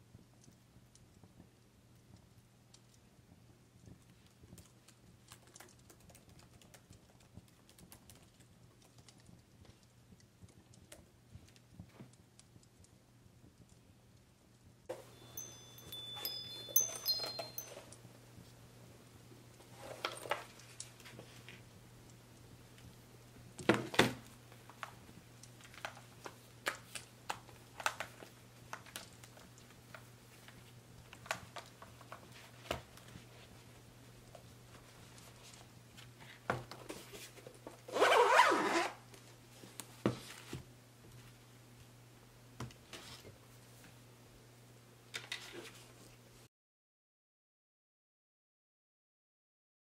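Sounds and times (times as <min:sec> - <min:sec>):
fireplace crackling: 0:00.0 - 0:06.0, 0:06.8 - 0:37.9
low steady hum: 0:12.5 - 0:37.8.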